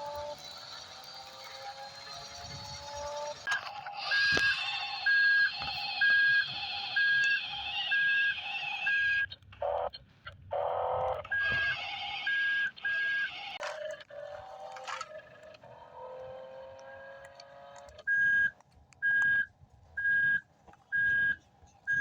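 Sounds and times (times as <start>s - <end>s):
electronic two-tone beeping: 3.5s - 9.3s.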